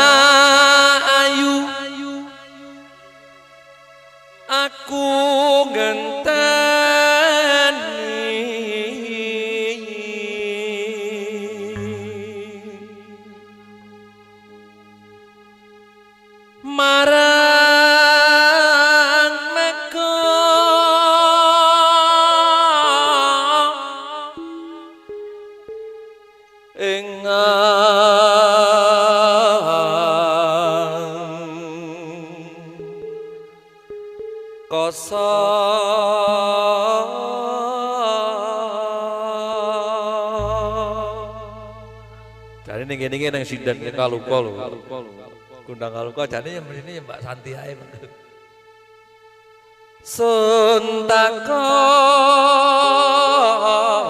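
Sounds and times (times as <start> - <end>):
man singing long wavering note: 4.5 - 15.7, 16.6 - 25.2, 26.8 - 33.7, 34.6 - 48.1
low steady tone: 11.6 - 17.2, 24.3 - 26.6, 40.4 - 45.5.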